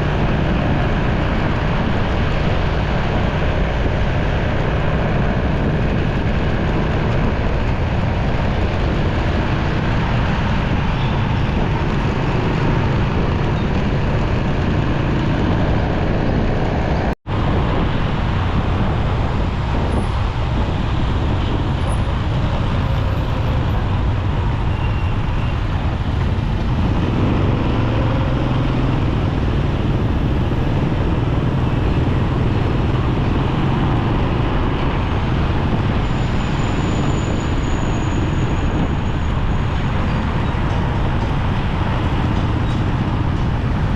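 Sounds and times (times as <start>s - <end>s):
surrounding traffic: 0.0s - 43.9s
motorcycle engine: 18.0s - 38.4s.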